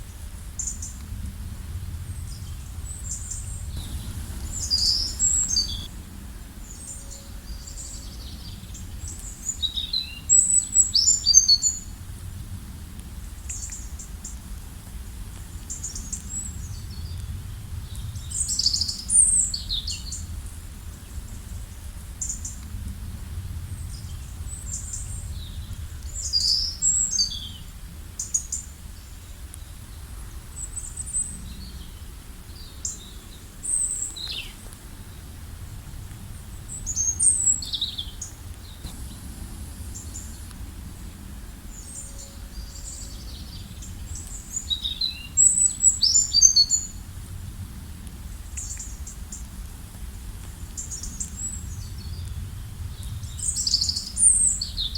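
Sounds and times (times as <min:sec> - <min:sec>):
low environmental rumble: 0:00.9 - 0:09.1, 0:31.3 - 0:46.0
small birds chirping: 0:02.2 - 0:05.9, 0:36.5 - 0:47.0.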